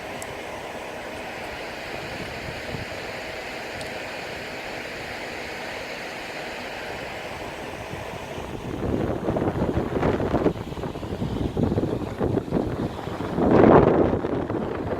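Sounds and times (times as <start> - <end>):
sea water rushing: 0.0 - 14.9
wind: 0.0 - 14.9.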